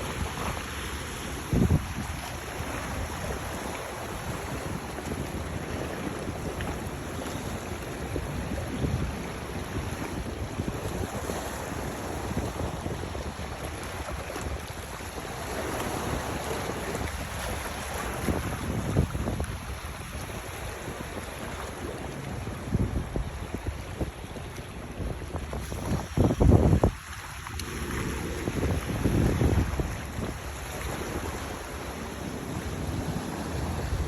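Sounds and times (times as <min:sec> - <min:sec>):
waves: 0:00.0 - 0:34.0
wind rumbling on microphone: 0:00.0 - 0:34.0.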